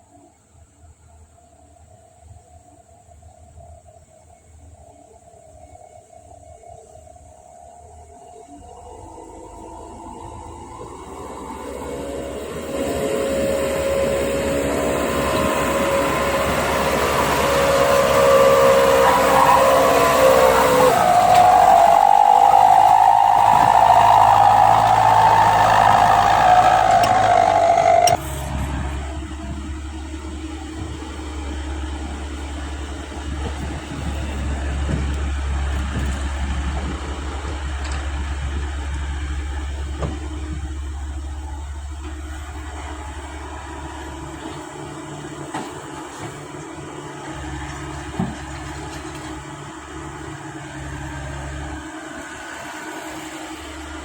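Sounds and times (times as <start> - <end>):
wavering high whine: 8.2 - 37.0
low engine hum: 8.3 - 54.0.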